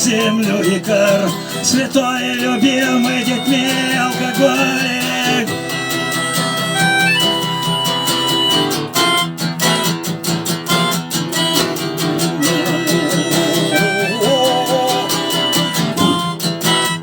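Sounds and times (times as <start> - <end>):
guitar strumming: 0.0 - 17.0
wavering melody line: 12.1 - 16.5.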